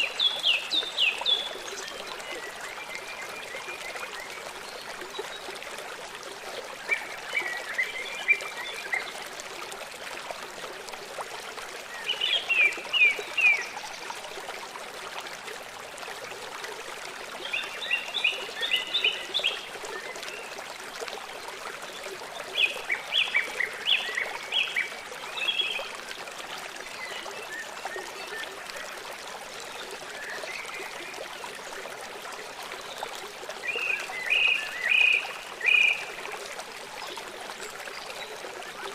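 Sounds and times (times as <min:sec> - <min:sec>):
flowing water: 0:00.0 - 0:38.9.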